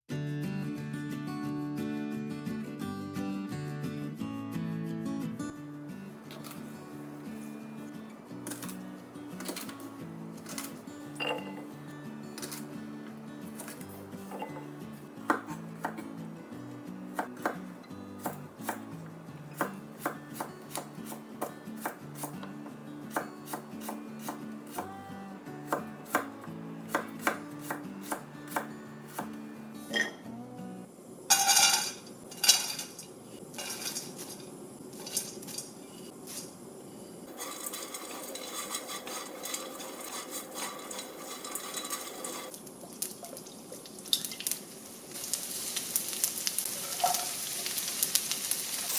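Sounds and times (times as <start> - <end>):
soft background music: 0.2 - 31.0
knife cutting on cutting board: 15.2 - 16.1, 19.6 - 22.5, 23.1 - 24.9, 25.6 - 26.3.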